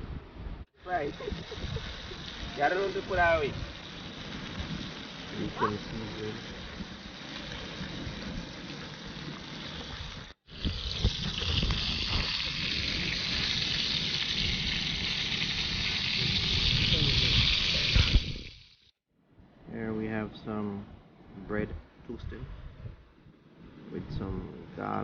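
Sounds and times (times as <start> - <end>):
bacon sizzling in a frying pan: 1.0 - 18.9.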